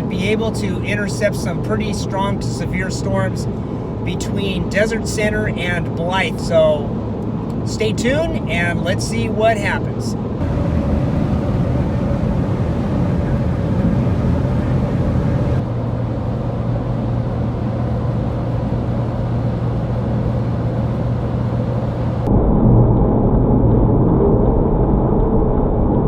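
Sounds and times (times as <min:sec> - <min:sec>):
car road and engine noise: 0:00.0 - 0:22.4
low steady hum: 0:00.0 - 0:26.0.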